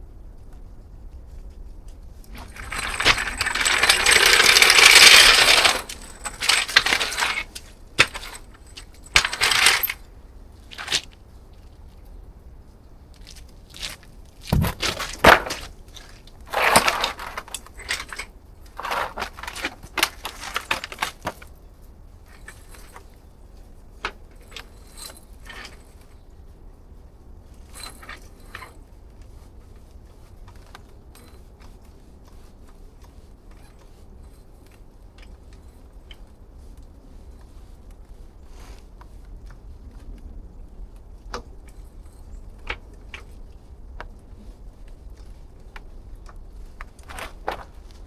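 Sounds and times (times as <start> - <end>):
hard objects clattering and scraping: 2.3 - 10.0, 13.8 - 21.5.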